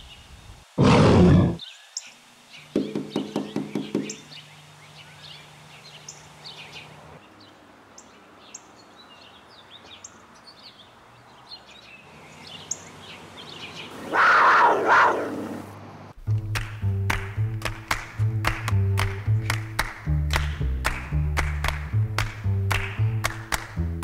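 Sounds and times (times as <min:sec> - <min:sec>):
songbirds chirping and twittering: 0:00.0 - 0:16.2.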